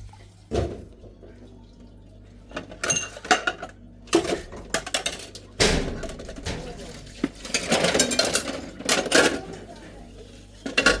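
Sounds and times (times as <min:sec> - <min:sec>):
dishes and utensils clinking: 0:02.5 - 0:09.9, 0:10.6 - 0:11.0.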